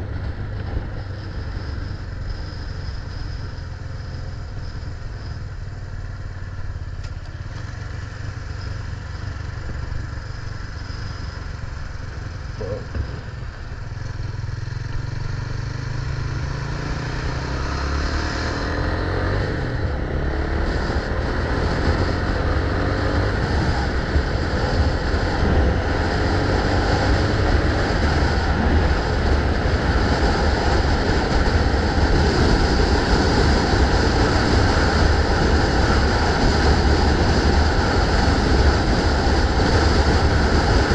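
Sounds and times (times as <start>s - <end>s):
wind rush on microphone: 0.0s - 5.6s, 16.8s - 40.9s
motorcycle engine running: 0.0s - 40.9s.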